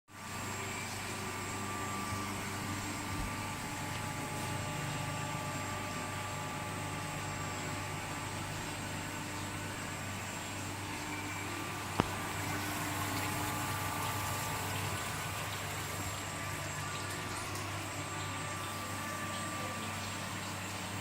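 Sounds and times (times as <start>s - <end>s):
knife grinder running: 0.2s - 21.0s.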